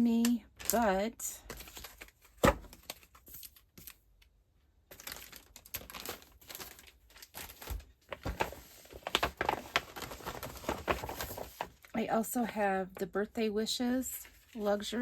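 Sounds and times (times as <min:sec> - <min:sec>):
foil sheets rustling and crinkling: 0:04.9 - 0:12.6.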